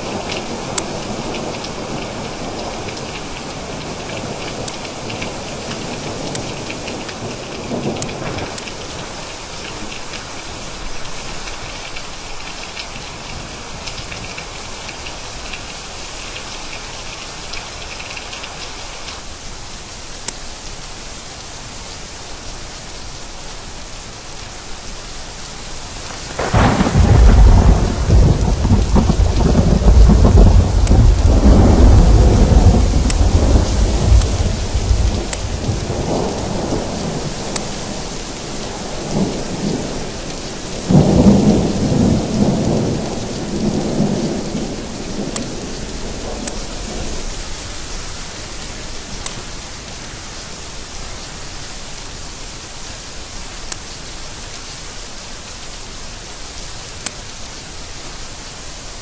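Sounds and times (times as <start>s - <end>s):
heavy rain: 0.0s - 59.0s
rolling thunder: 26.0s - 48.2s
sharp drop ticks: 30.3s - 31.2s, 34.1s - 34.4s, 35.2s - 35.5s.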